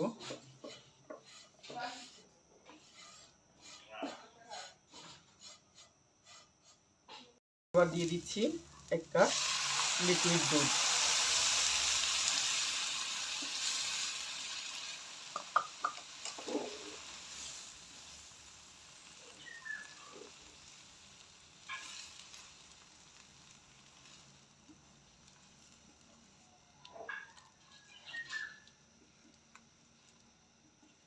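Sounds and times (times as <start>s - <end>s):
milk sizzling in hot pan: 7.8s - 31.0s
spoon knocking against pan: 15.3s - 16.5s.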